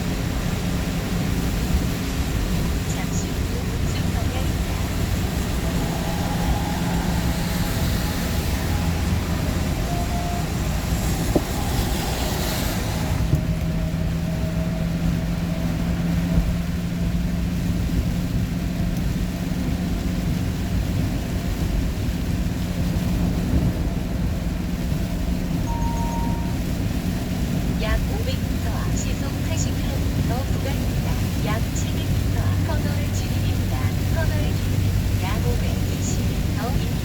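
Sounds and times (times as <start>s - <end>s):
vehicle engine hum and road noise: 0.0s - 37.0s
high hiss: 4.5s - 13.3s.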